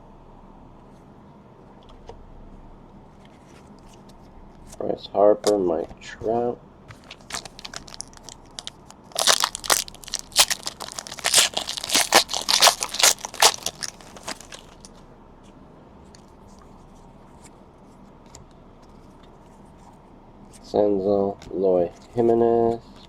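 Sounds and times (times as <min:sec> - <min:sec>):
foil wrapper crinkling and tearing: 0:07.0 - 0:14.9.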